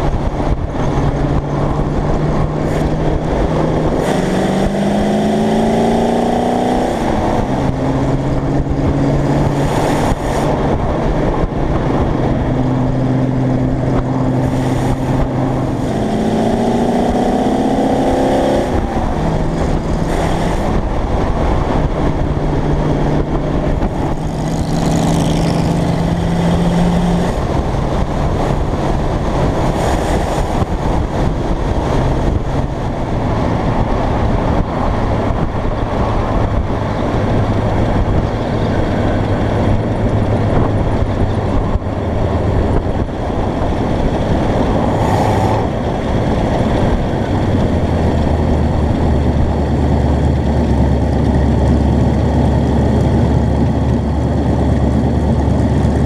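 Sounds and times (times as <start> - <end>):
hot rod engine accelerating: 0.0 - 56.0.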